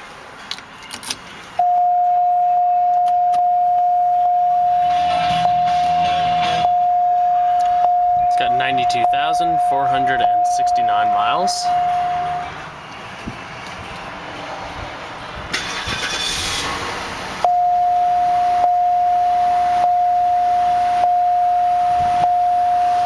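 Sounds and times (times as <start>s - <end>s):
car electronic warning chime: 1.6s - 12.6s, 17.4s - 23.0s.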